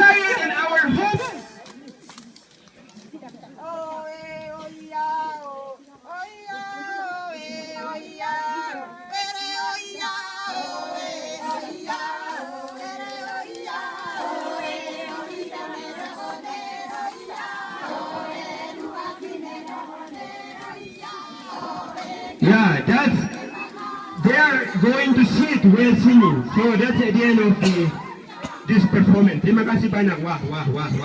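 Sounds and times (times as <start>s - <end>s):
women singing unaccompanied: 3.6s - 22.4s, 23.4s - 24.2s.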